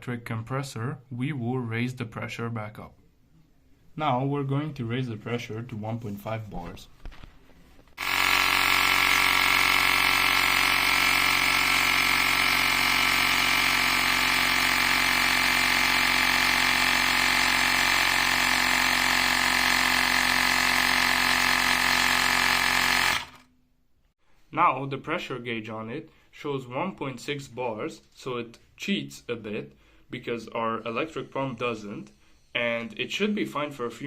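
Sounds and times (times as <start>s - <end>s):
air compressor motor drone: 8.0s - 23.5s.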